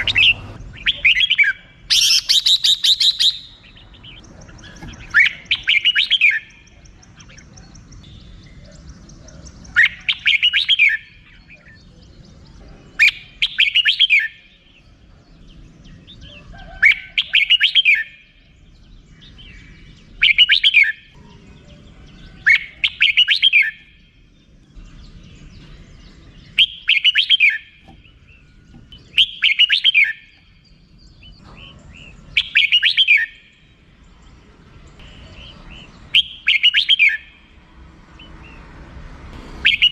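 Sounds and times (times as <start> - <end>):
bulbul chattering call: 0.0 - 14.9, 19.1 - 33.7, 39.5 - 39.9.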